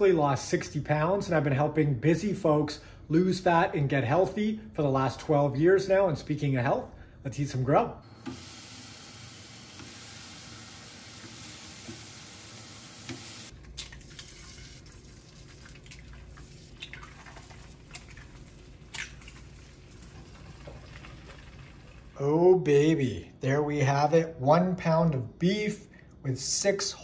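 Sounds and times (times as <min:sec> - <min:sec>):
beef patty sizzling: 0:08.1 - 0:22.2
eggs frying in a pan: 0:08.2 - 0:22.2.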